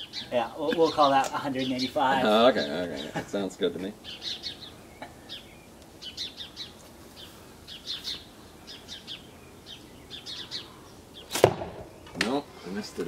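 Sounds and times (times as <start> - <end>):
small songbirds chirping: 0.0 - 13.0.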